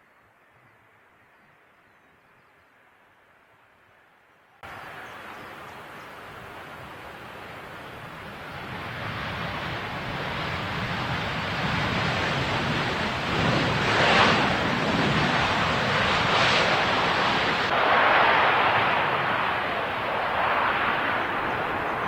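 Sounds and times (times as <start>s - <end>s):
jet airliner engine roar: 4.6s - 22.0s
wind buffeting microphone: 4.7s - 22.0s.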